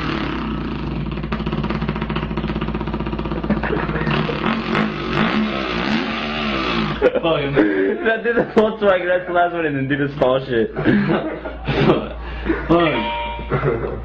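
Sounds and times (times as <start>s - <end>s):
man imitating dirt bike engine: 0.0s - 8.5s.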